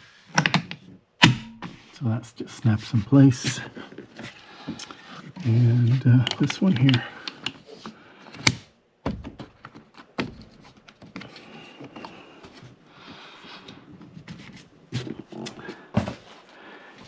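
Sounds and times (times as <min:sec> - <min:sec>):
plastic handling: 0:03.4 - 0:16.6.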